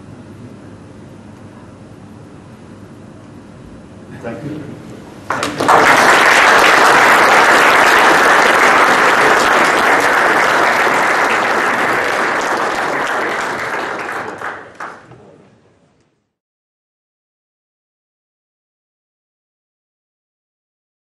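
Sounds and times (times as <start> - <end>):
audience applauding: 5.3 - 15.2.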